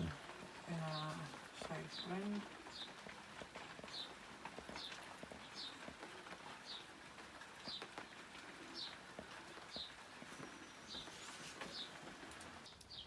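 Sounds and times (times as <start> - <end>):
small bird calling: 9.7 - 12.2.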